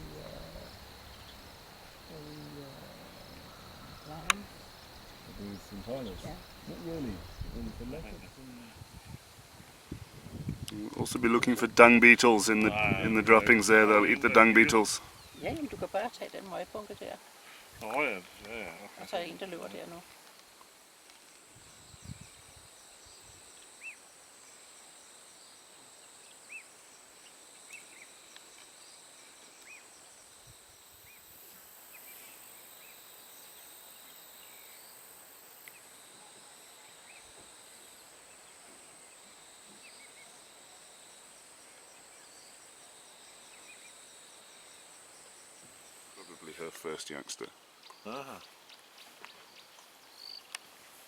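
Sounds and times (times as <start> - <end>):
higher insect trilling: 0.0 - 9.0, 11.2 - 17.2
insects trilling: 0.0 - 51.0.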